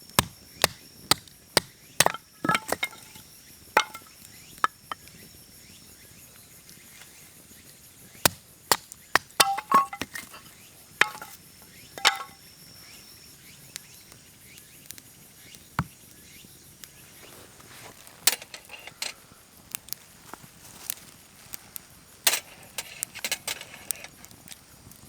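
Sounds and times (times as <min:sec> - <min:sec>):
faint insect sound: 0:00.0 - 0:25.0
objects knocking and clinking: 0:02.0 - 0:03.2, 0:03.8 - 0:05.0, 0:08.7 - 0:11.4, 0:12.0 - 0:12.4.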